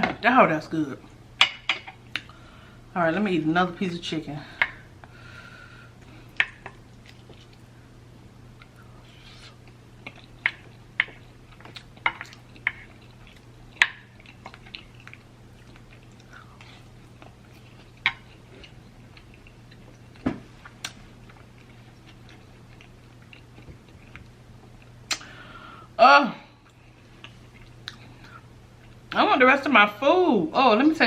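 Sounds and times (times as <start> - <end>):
chewing food: 6.0 - 7.7, 8.6 - 25.0, 26.6 - 29.2
wet mouth clicks and smacks: 25.1 - 25.3.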